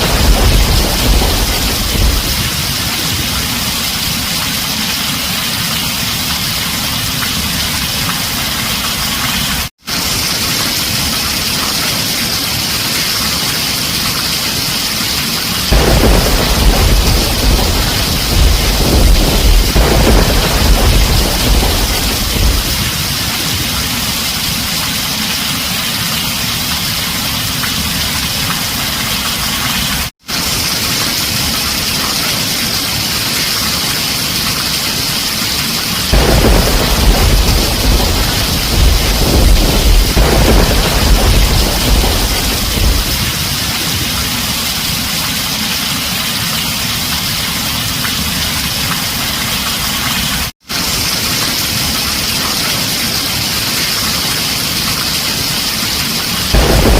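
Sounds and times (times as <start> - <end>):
low rumble of thunder: 0.0 - 4.4, 15.7 - 24.7, 36.1 - 44.7, 56.5 - 56.9
heavy rain drumming on a tin roof: 0.0 - 56.9.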